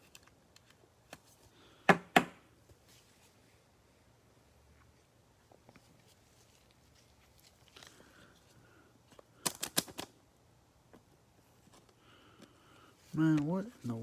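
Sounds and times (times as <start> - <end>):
cards rustling: 5.6 - 10.2, 11.4 - 14.0.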